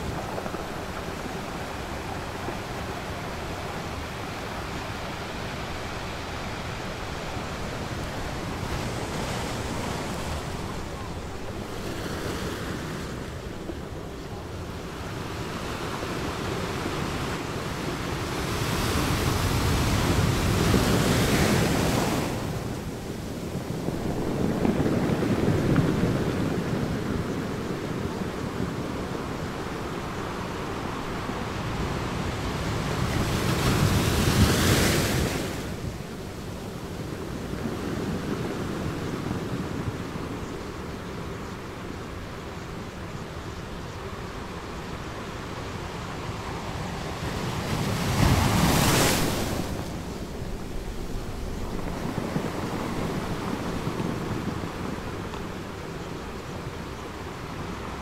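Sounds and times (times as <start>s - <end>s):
ocean waves breaking: 45.6s - 58.0s.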